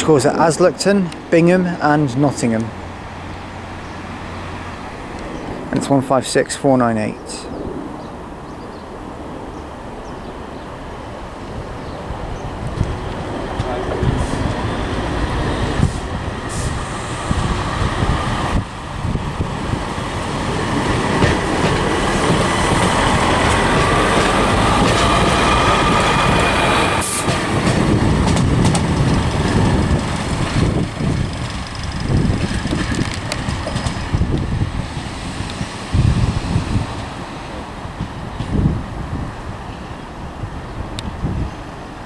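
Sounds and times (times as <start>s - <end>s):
wheel and rail noise: 7.7s - 41.1s
diesel train engine under load: 12.1s - 39.1s.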